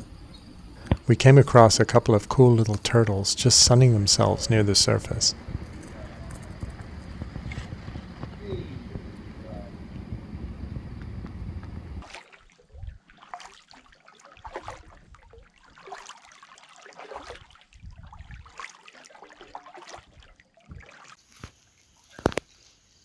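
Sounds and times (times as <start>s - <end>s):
kayak paddle splashing water: 0.0s - 12.0s
wind rumble on microphone: 0.0s - 12.0s, 17.8s - 18.5s.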